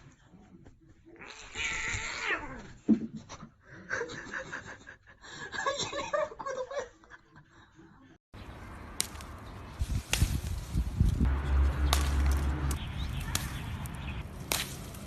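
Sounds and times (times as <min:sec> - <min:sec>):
person laughing and giggling: 0:03.8 - 0:07.5.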